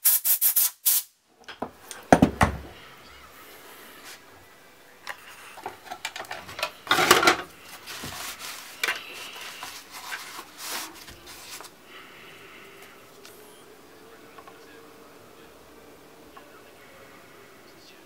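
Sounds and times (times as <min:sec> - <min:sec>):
scraping: 0:05.1 - 0:11.8.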